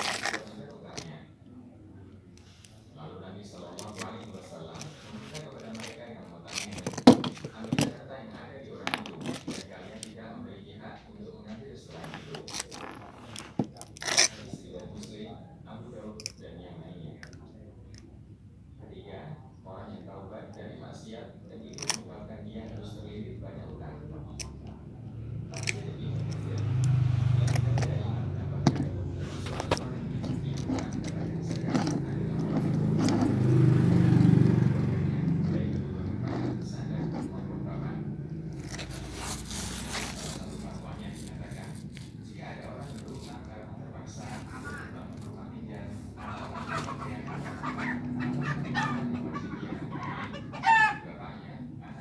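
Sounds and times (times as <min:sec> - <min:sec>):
small engine humming: 0:25.1 - 0:43.4
chickens clucking: 0:45.9 - 0:51.6.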